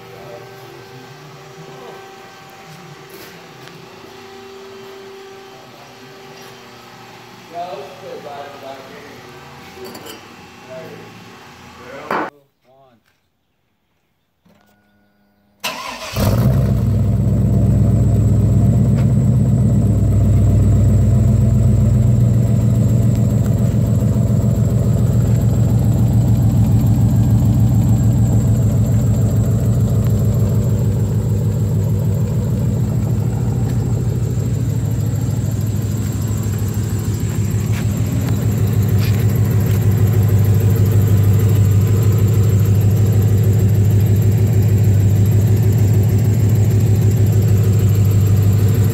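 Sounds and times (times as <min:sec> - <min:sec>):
car engine starting and idling: 0:15.6 - 0:48.9.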